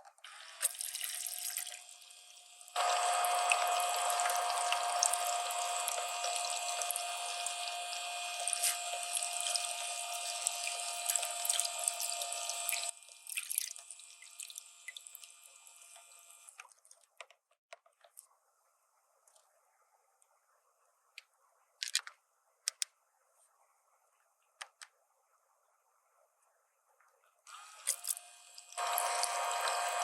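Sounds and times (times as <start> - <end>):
water running from faucet: 0.3 - 16.5, 27.5 - 30.0
small clicks: 21.2 - 23.0.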